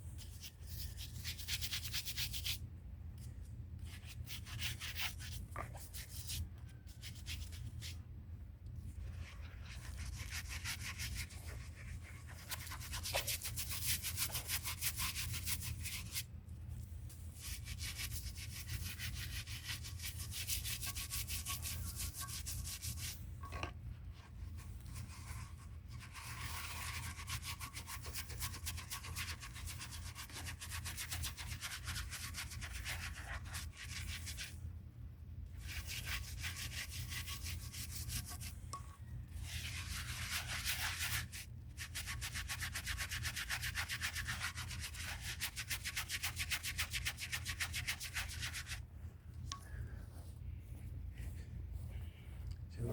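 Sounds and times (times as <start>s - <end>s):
stiff brush scrubbing concrete: 9.2s - 16.2s, 17.4s - 23.2s, 39.4s - 48.8s.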